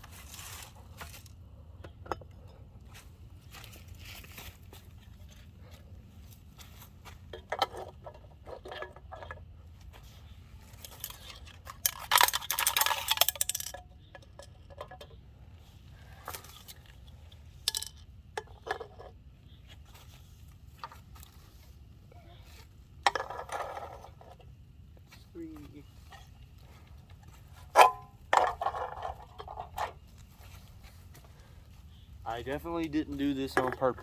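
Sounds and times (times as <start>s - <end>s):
aluminium cans clinking: 10.8s - 15.2s.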